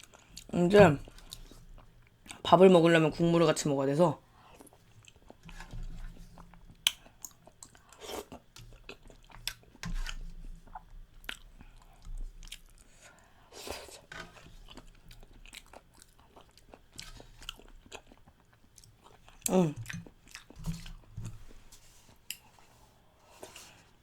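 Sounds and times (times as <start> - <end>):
chewing food: 0.0 - 2.4, 4.4 - 21.1.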